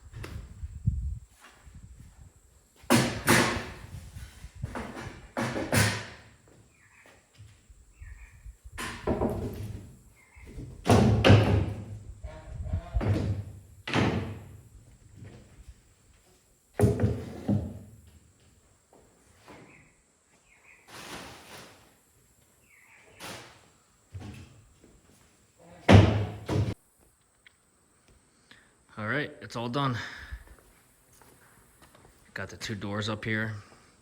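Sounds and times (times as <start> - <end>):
wooden panels knocking and slamming: 2.8 - 6.3, 8.8 - 14.6, 16.8 - 17.9, 25.9 - 26.8.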